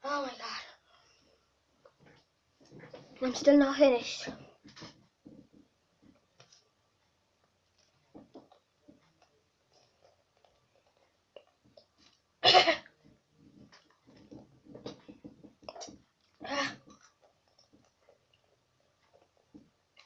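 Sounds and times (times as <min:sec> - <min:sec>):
chewing noises: 0:07.8 - 0:12.3, 0:15.6 - 0:20.0
person coughing: 0:12.4 - 0:12.9.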